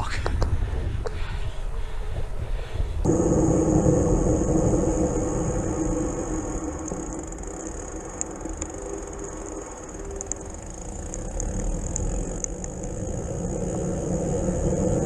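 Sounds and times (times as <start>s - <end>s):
wind on microphone: 0.0s - 15.0s
bicycle tyre rumble: 0.1s - 15.0s
high steady whine: 3.0s - 15.0s.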